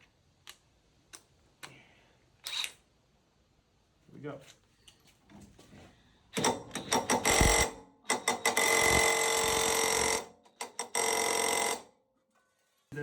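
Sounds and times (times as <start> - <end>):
impact wrench hammering: 6.4 - 11.8.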